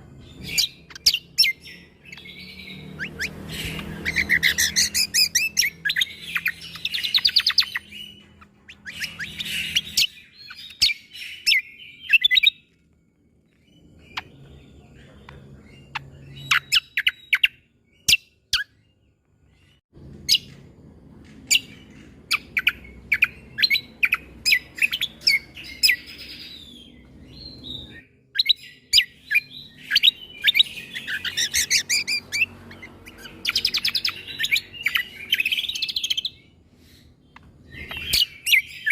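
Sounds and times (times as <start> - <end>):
bird singing chattering trills: 0.0 - 20.6, 21.4 - 38.9.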